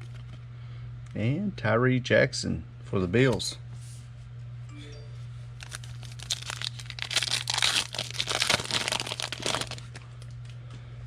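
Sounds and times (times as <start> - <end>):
foil wrapper crinkling and tearing: 5.6 - 10.6.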